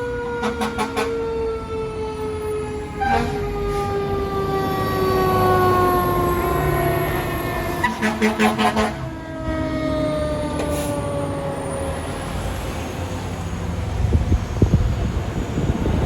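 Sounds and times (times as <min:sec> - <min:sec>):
heavy truck engine rumbling: 0:00.0 - 0:16.0
pulsing horn blasts: 0:00.3 - 0:01.3, 0:02.7 - 0:04.0, 0:07.5 - 0:10.6.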